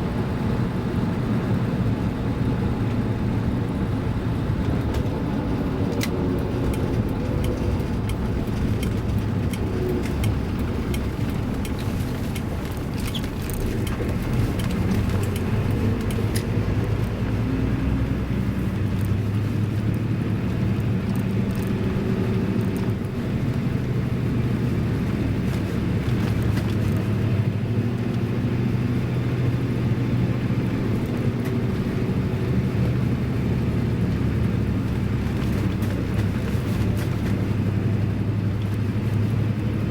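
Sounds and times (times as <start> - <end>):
diesel engine running: 0.0 - 39.9
road noise: 0.0 - 39.9
light clicks and rattles: 5.8 - 17.2, 18.6 - 20.0, 20.6 - 21.9, 22.5 - 23.6.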